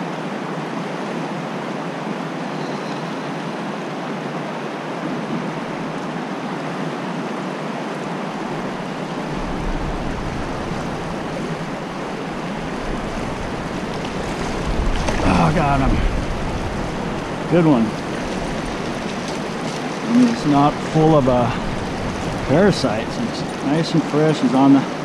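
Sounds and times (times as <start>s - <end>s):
creek rushing over rocks: 3.7s - 25.0s
low rumble: 8.7s - 19.6s.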